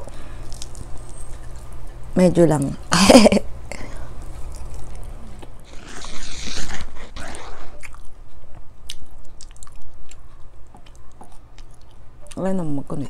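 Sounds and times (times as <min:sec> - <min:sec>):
chewing close to microphone: 0:04.2 - 0:12.4.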